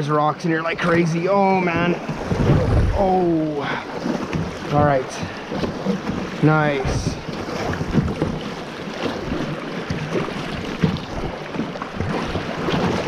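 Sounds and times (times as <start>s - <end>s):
river water splashing around kayak: 0.0s - 13.0s
wind noise on microphone: 2.0s - 3.4s.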